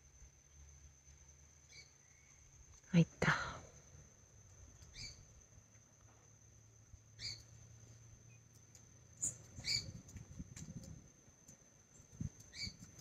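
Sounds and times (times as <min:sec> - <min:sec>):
bird squeaky chirps: 0:04.9 - 0:05.2, 0:07.2 - 0:07.5, 0:09.2 - 0:10.0, 0:12.5 - 0:12.8.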